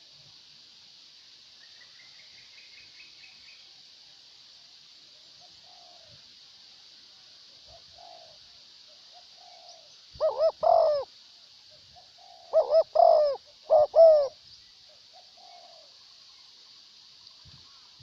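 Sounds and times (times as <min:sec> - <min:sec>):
steady high hiss: 0:00.0 - 0:18.0
doves cooing: 0:07.7 - 0:08.4, 0:09.1 - 0:11.1, 0:12.0 - 0:14.4, 0:15.1 - 0:16.0.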